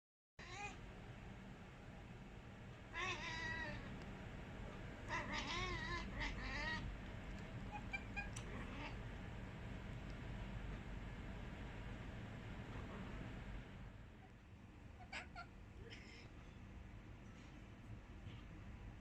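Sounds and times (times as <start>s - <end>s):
cat chattering: 3.0s - 3.9s, 5.0s - 6.9s, 7.6s - 9.0s, 15.0s - 16.3s.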